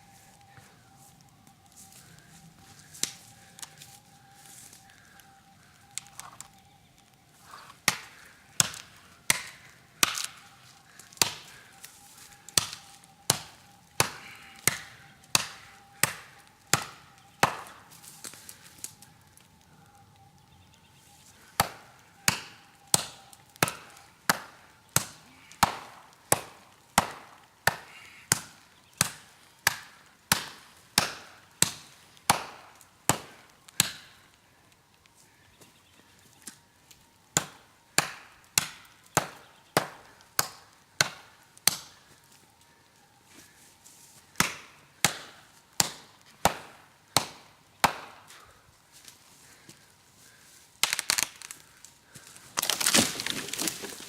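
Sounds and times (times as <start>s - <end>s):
blade chopping into tree trunk: 52.6s - 54.0s.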